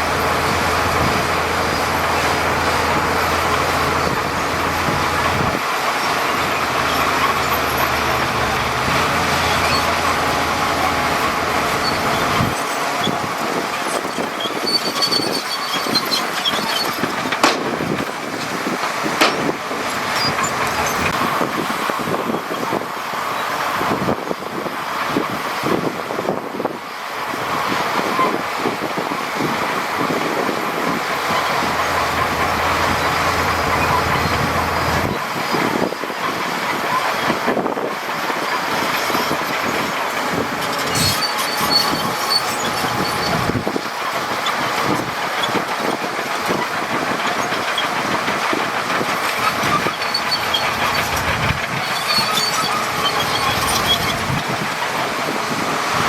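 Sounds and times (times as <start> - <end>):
diesel machinery engine running: 0.0 - 56.0
steady mechanical noise: 0.0 - 56.0.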